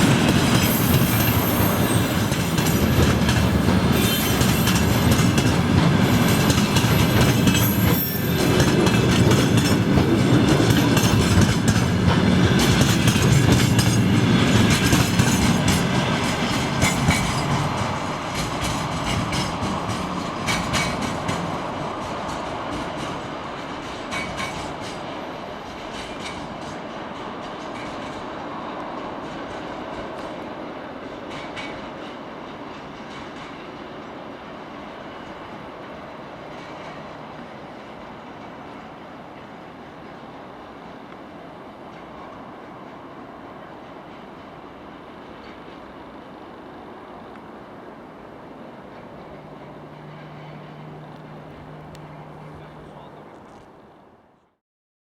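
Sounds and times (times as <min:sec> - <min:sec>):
wheels squealing on rail: 0:00.0 - 0:30.6, 0:42.0 - 0:53.9
train wheels clacking over rail joints: 0:00.0 - 0:34.3.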